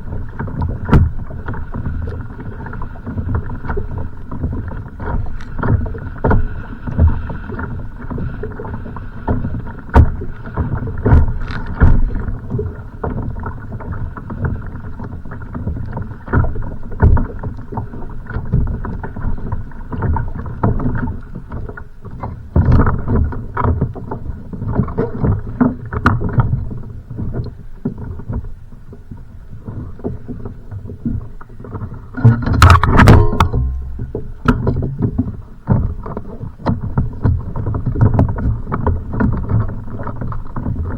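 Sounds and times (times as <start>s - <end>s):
waves slapping against kayak hull: 0.0s - 40.9s
knocks and thuds on hull: 0.1s - 2.0s, 3.0s - 28.5s, 29.8s - 40.9s.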